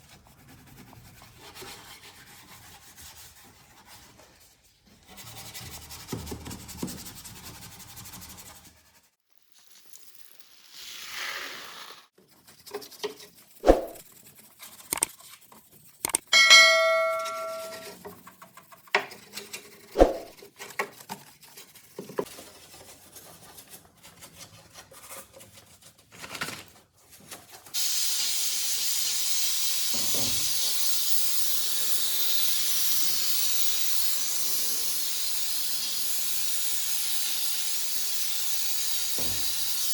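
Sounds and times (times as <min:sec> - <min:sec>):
brief metallic ring: 0:16.4 - 0:17.9.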